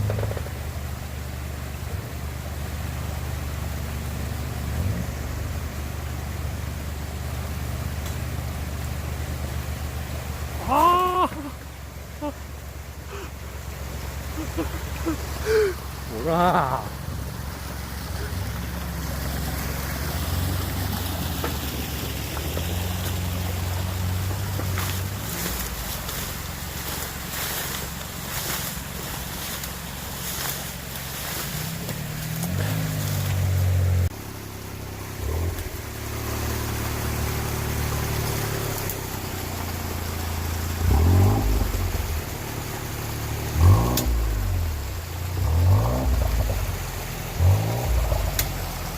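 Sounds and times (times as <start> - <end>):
vehicle engine idling: 0.0 - 48.9
faint ticks: 48.3 - 48.6.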